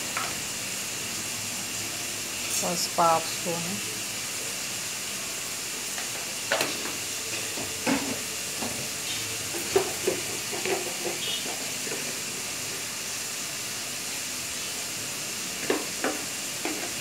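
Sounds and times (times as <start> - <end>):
vegetables sizzling in oil: 0.0 - 17.0
utensils clinking against pan: 9.5 - 12.2.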